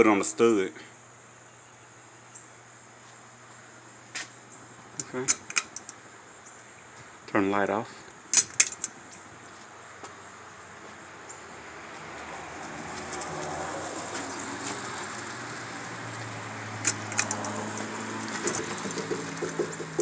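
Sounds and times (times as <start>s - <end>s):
pull-chain click: 5.0s - 6.0s, 8.3s - 9.2s, 16.8s - 19.2s.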